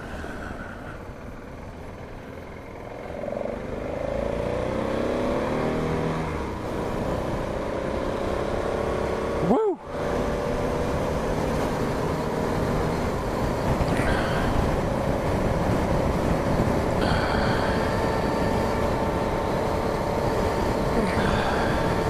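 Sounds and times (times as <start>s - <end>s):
motorcycle engine cruising: 0.0s - 22.0s
wind rushing over microphone: 9.9s - 22.0s.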